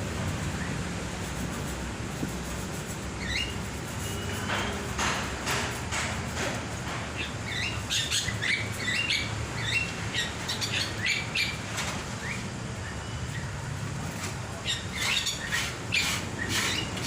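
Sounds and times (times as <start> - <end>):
bird chirping: 3.2 - 4.5, 7.2 - 13.6, 14.5 - 17.0.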